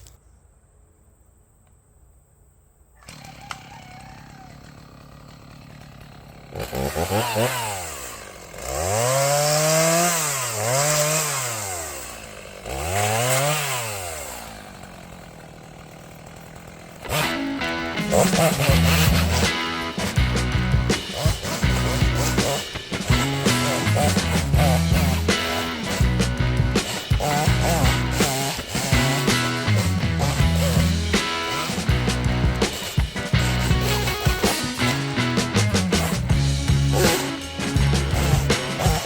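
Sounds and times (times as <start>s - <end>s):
chainsaw idling and revving: 3.0s - 39.0s
music: 17.1s - 39.0s.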